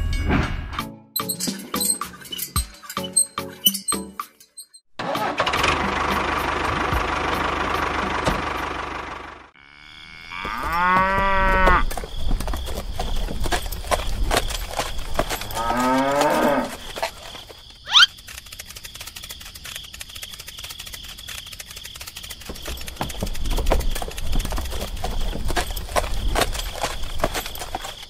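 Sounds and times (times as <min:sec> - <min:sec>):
sharply rising squeak: 0:01.2 - 0:04.9, 0:17.8 - 0:18.2
cow mooing: 0:09.6 - 0:11.9, 0:15.5 - 0:16.8.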